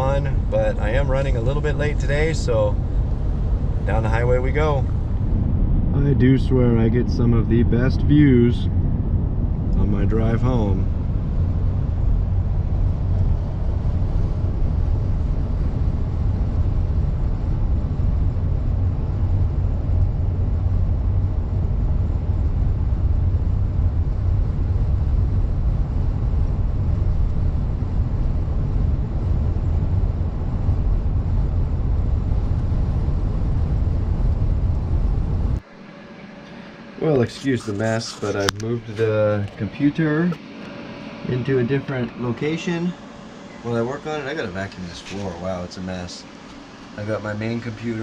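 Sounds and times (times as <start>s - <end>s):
car road and engine rumble: 0.0s - 35.7s.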